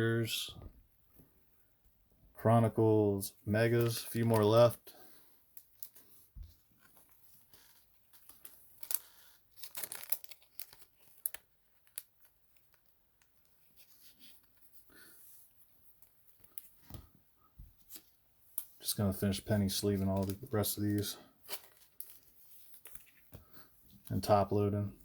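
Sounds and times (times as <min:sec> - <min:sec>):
thin plastic crinkling: 0:05.5 - 0:14.8, 0:19.6 - 0:24.3.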